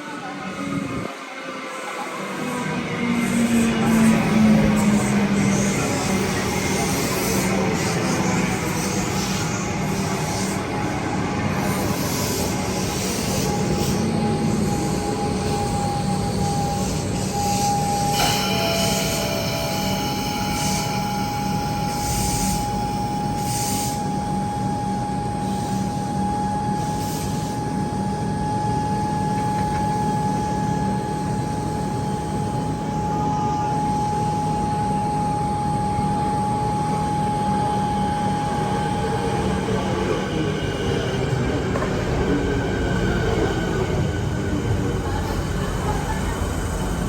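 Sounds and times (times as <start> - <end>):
train wheel squeal: 0.0 - 47.0
wavering squealing tones: 2.7 - 23.2.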